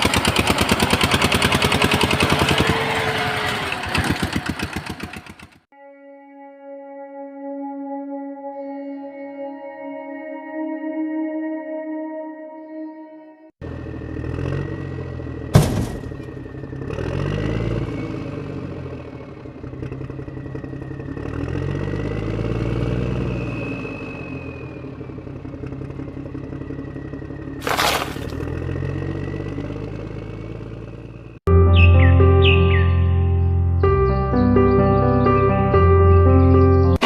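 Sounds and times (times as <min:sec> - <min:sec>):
backhoe loader engine running: 0:00.0 - 0:05.6, 0:13.6 - 0:31.4
sharp knock: 0:15.6 - 0:16.4.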